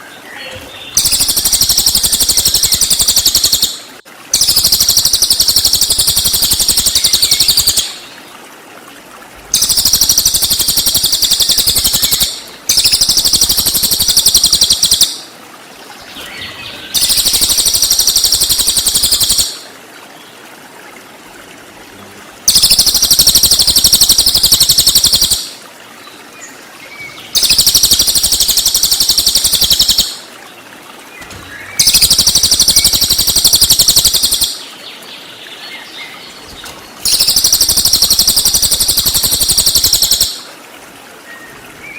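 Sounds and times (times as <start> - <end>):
songbird trilling: 0.0 - 3.8, 4.4 - 8.0, 9.6 - 15.2, 16.2 - 19.6, 22.5 - 25.5, 27.3 - 30.2, 31.2 - 34.7, 37.0 - 40.4.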